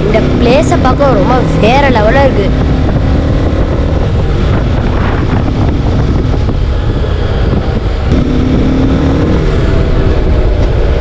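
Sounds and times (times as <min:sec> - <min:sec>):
motorcycle engine running: 0:00.0 - 0:11.0
wind buffeting microphone: 0:00.0 - 0:11.0.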